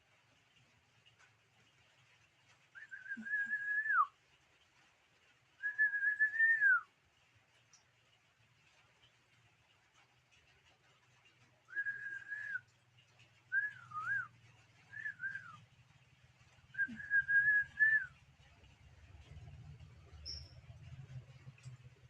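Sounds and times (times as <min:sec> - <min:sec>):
person whistling: 0:02.8 - 0:04.1, 0:11.7 - 0:12.6, 0:16.8 - 0:18.1.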